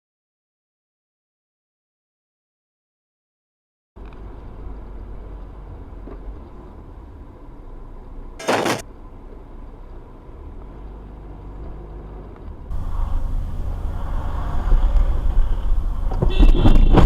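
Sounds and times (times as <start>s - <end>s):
vehicle driving rumble: 4.0s - 17.0s
loud noise burst: 8.4s - 8.8s.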